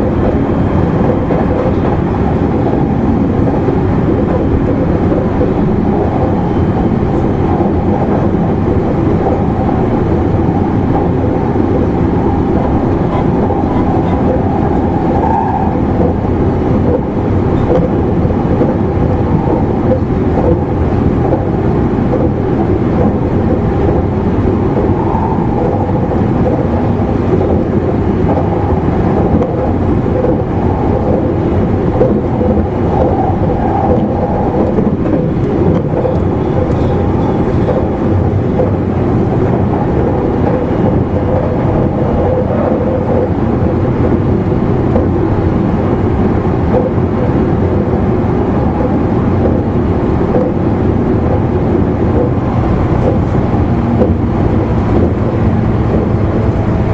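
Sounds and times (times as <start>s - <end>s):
rumble of train wheels on track: 0.0s - 56.9s.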